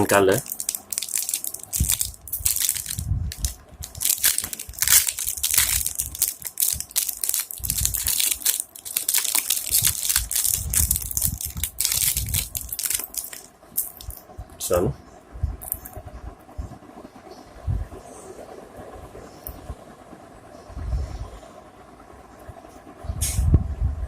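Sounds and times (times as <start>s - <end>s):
plastic packaging crinkling: 0.0s - 14.2s.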